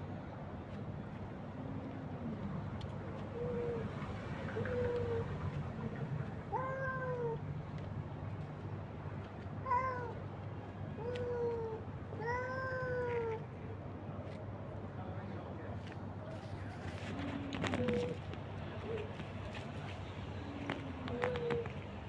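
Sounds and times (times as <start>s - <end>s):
cats meowing: 6.5s - 7.4s, 9.6s - 10.2s, 11.0s - 13.4s.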